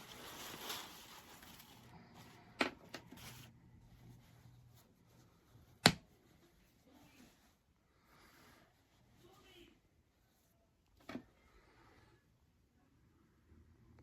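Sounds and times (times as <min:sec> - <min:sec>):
rustling from handling: 0:00.0 - 0:02.4.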